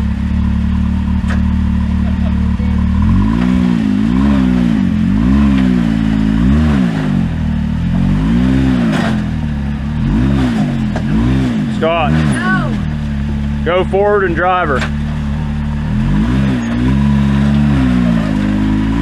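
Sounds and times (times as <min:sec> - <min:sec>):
utility vehicle engine revving: 0:00.0 - 0:19.0.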